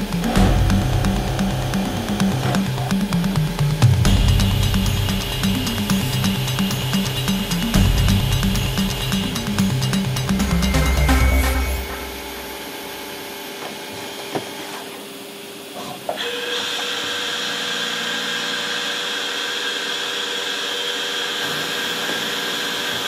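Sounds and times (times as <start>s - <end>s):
lathe machine hum: 0.0s - 14.3s
machine whine with hiss: 0.0s - 23.0s.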